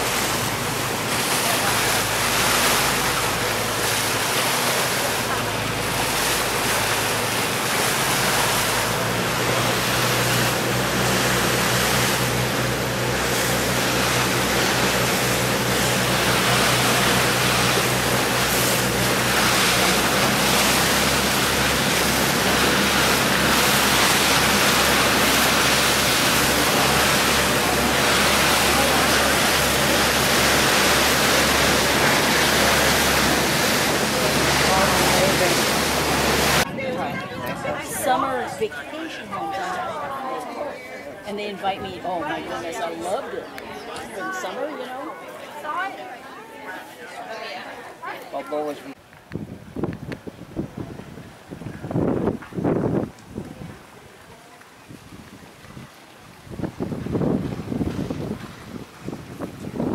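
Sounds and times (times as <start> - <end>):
boat engine hum: 0.0 - 59.9
rushing water: 0.0 - 59.9
wind: 0.0 - 59.9.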